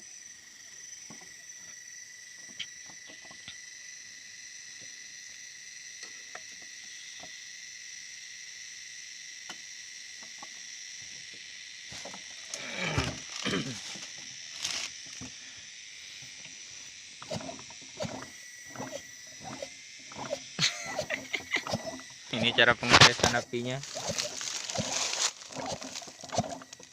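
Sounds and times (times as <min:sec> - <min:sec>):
crickets chirping: 0:00.0 - 0:26.9
chainsaw recoil starter whirring: 0:11.9 - 0:15.6, 0:16.2 - 0:26.9.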